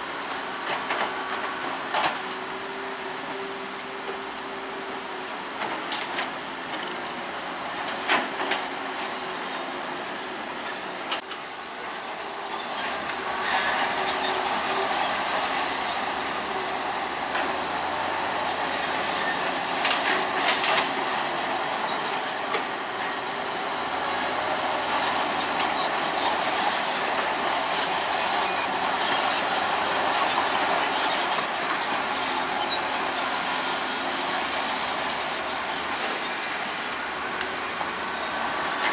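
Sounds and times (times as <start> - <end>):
bulldozer engine under load: 0.1 - 38.9
steel tracks clanking: 10.6 - 38.9.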